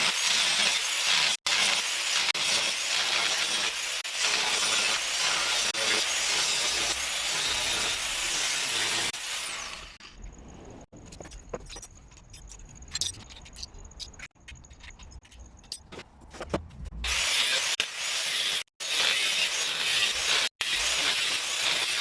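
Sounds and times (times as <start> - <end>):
harsh power tool noise: 0.0 - 10.0, 17.0 - 22.0.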